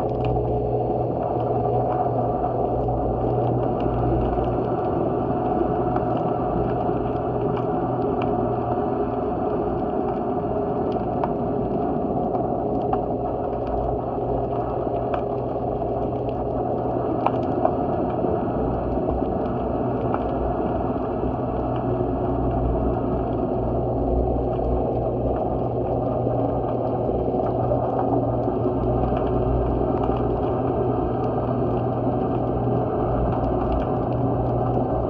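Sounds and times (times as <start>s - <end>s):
low underwater hum and rumble: 0.0s - 35.0s
sharp underwater clicks and crackles: 0.0s - 35.0s.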